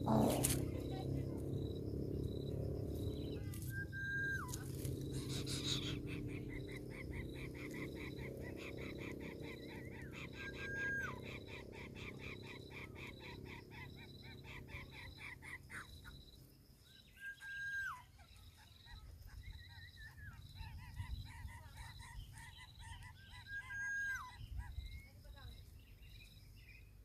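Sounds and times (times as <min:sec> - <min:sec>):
frogs pulsing chorus: 0:00.0 - 0:16.6
high insect trill: 0:00.0 - 0:26.8.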